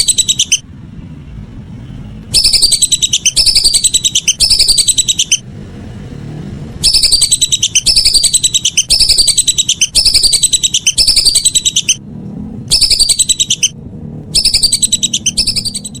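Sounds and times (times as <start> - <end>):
whistling duck calls: 0.0 - 0.6, 2.3 - 5.4, 6.8 - 12.0, 12.7 - 13.8, 14.4 - 16.0.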